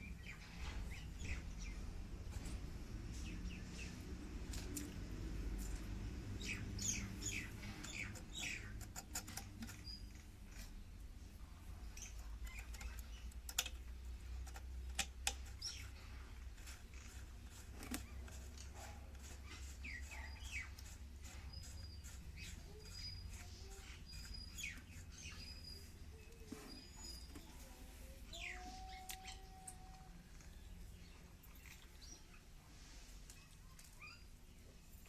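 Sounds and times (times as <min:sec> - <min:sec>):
faint bird chirps: 0:18.0 - 0:34.7.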